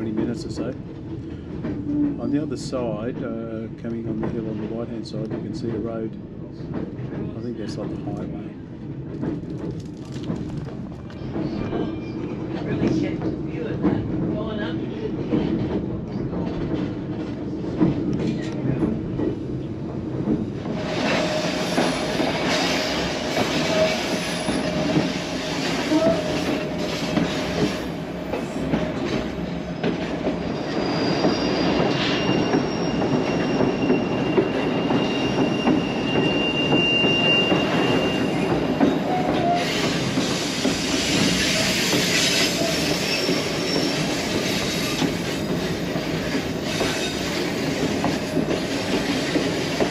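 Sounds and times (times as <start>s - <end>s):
train wheels clattering on rails: 0.0s - 49.9s
high wheel squeals: 30.3s - 49.9s.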